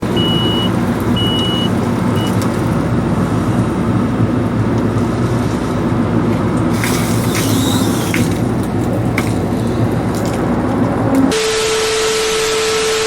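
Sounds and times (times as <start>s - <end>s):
alarm beeping: 0.0s - 2.4s
excavator diesel engine running: 0.0s - 11.6s.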